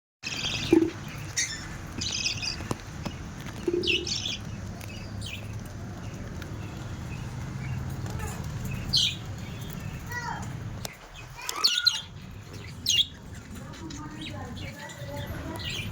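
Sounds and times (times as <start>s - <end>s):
budgerigars chirping: 0.3s - 15.9s.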